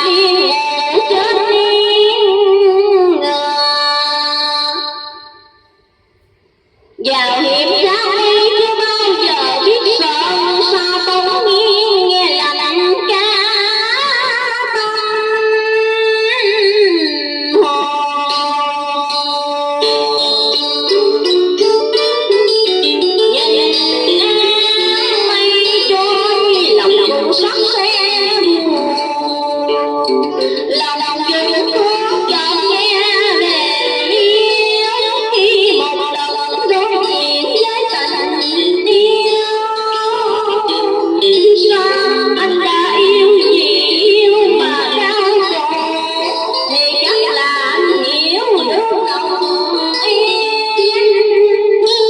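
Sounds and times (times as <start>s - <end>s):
melody with vibrato and sliding notes: 17.7s - 52.0s.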